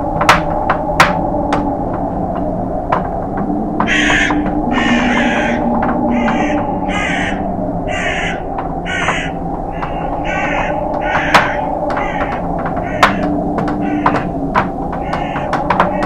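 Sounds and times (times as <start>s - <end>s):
low wind noise: 0.0s - 16.0s
crows cawing: 3.8s - 16.0s.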